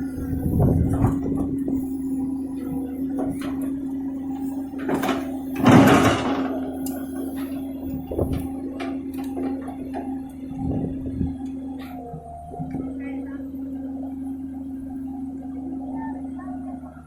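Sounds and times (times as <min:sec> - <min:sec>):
excavator engine humming: 0:00.0 - 0:17.0
metal knocks and clanks: 0:03.2 - 0:03.9, 0:04.7 - 0:06.7.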